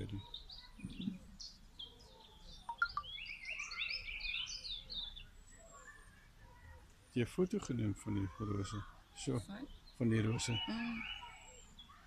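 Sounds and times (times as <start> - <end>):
birds chirping: 0.0 - 12.0
bird trill: 0.2 - 6.2, 9.6 - 12.0.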